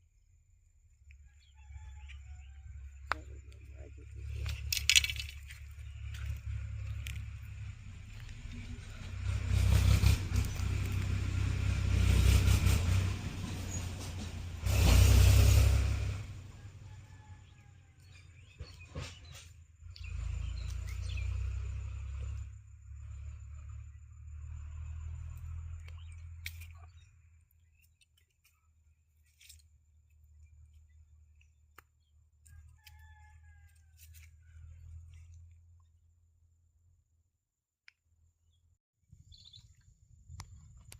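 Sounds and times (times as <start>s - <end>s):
low hum: 2.2s - 17.5s.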